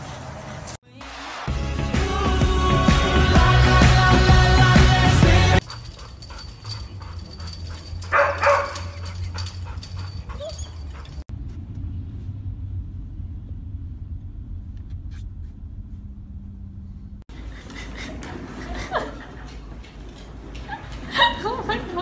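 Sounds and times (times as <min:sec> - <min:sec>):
dog crying: 0:05.6 - 0:11.2
dog whimpering: 0:05.6 - 0:11.2
low hum: 0:05.6 - 0:19.3.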